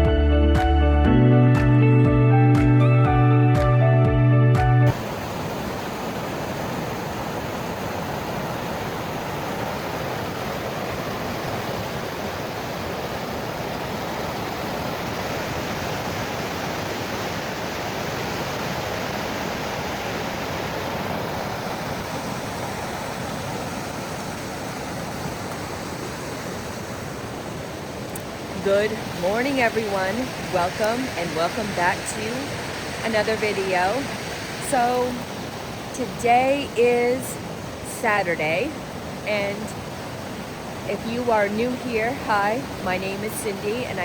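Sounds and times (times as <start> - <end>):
intro music: 0.0 - 4.9
water rushing over falls: 4.9 - 44.0.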